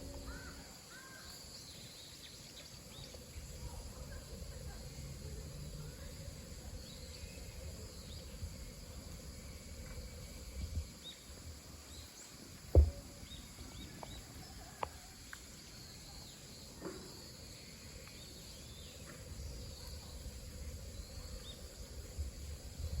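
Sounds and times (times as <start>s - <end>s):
sharp knock: 12.7s - 13.0s.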